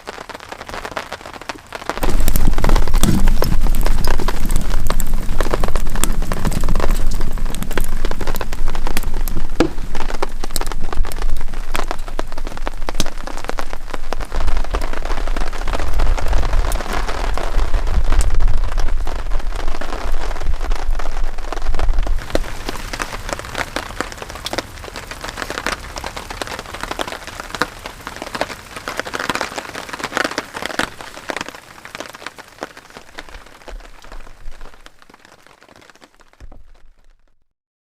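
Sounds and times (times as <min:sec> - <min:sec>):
heavy rain falling: 0:00.0 - 0:37.1
low rumble: 0:02.0 - 0:13.8.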